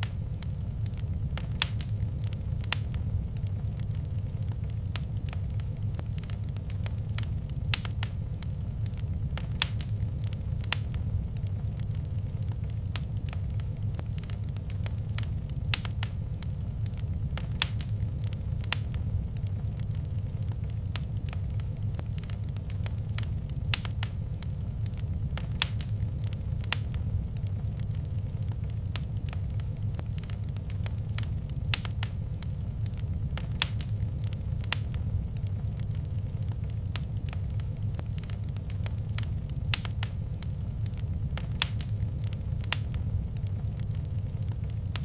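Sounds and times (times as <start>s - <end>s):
sharp fire pops: 0.0s - 45.0s
wood fire crackling: 0.0s - 45.0s.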